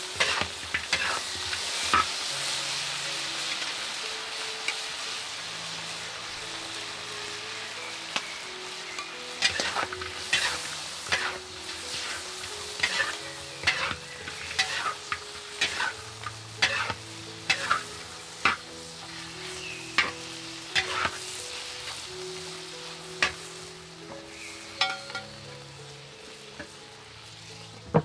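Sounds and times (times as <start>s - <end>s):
utensil scraping a pan: 0.0s - 2.2s, 9.4s - 21.4s, 24.3s - 25.4s
food sizzling in a pan: 0.0s - 28.0s.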